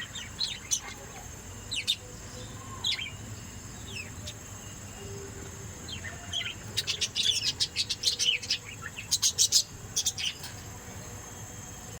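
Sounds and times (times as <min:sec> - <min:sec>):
small bird chirping: 0:00.0 - 0:11.4.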